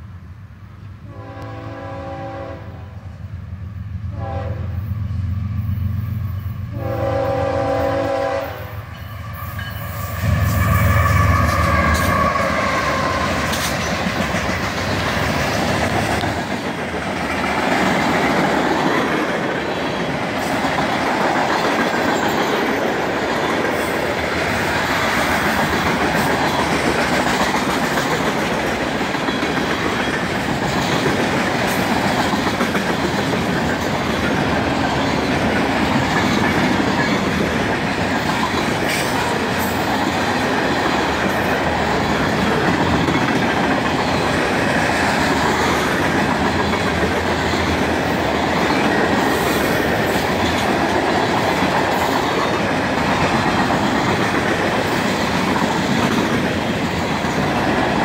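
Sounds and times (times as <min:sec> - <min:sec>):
locomotive air horn blasts: 0:01.0 - 0:03.1, 0:04.1 - 0:04.8, 0:06.7 - 0:08.8
wheels clattering on rails: 0:11.4 - 0:58.0.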